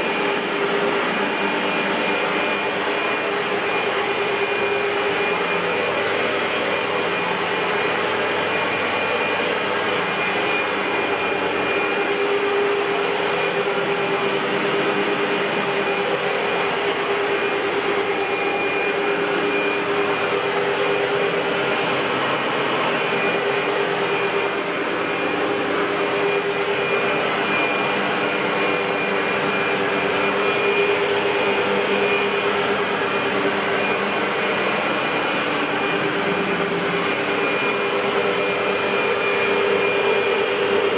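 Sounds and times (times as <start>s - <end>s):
upright vacuum cleaner running: 0.0s - 40.9s.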